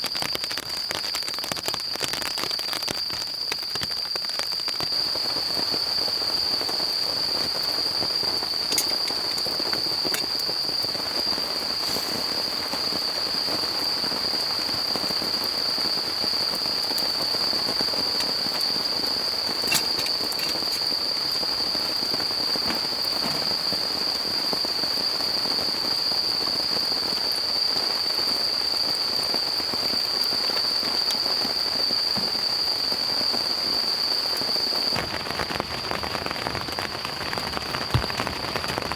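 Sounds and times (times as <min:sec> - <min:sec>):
steady rain falling: 0:00.0 - 0:38.9
insect trilling: 0:05.2 - 0:14.3, 0:15.8 - 0:25.4.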